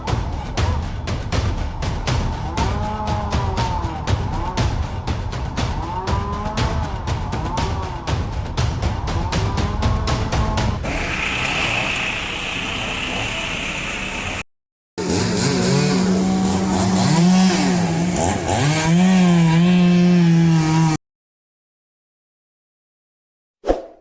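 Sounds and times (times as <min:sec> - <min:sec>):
chainsaw cutting wood: 0:09.4 - 0:14.4, 0:15.0 - 0:21.0.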